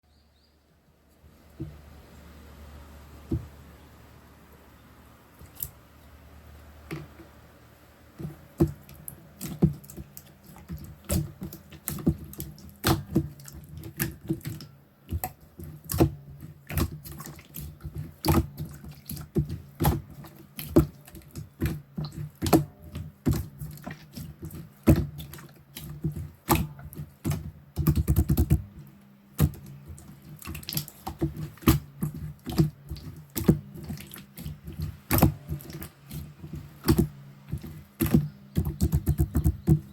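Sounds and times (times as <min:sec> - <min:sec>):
slime being squished: 0:08.2 - 0:39.9.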